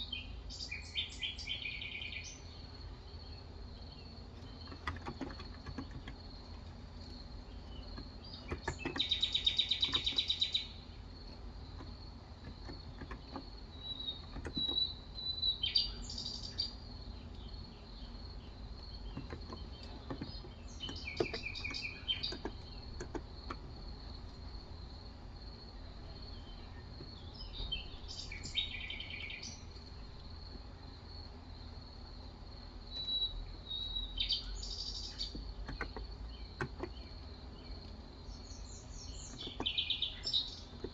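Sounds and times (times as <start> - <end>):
birds singing: 0.0 - 40.9
insect drone: 0.0 - 40.9.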